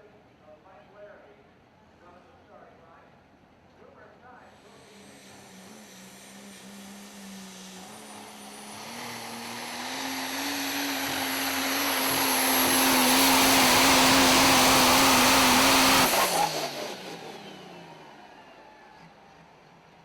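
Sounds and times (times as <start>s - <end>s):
diesel truck engine at full power: 4.6s - 20.0s.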